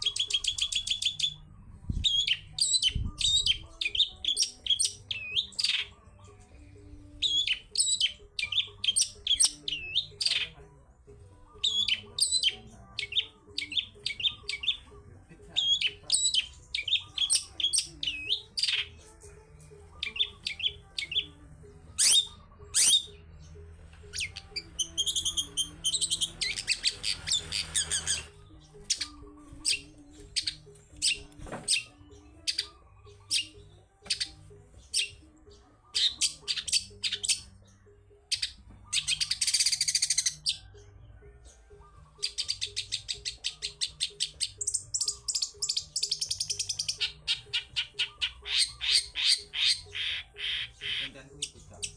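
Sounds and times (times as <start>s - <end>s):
buzzy bird trills: 20.0s - 23.4s, 24.0s - 40.7s, 41.8s - 51.9s.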